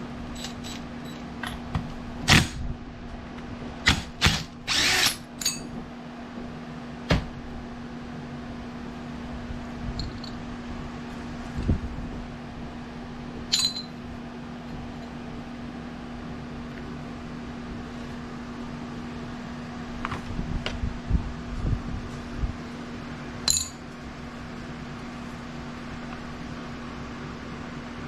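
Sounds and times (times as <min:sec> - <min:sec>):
steady background hum: 0:00.0 - 0:28.0
metal clinking on workbench: 0:05.4 - 0:05.7, 0:13.5 - 0:14.0, 0:23.5 - 0:23.8.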